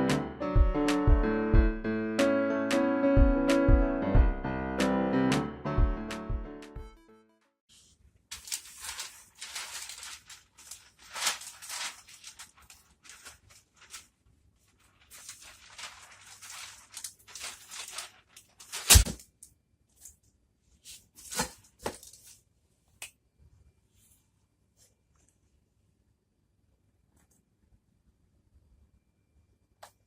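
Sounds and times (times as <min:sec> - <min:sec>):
packaging rustling and tearing: 0:08.3 - 0:19.2.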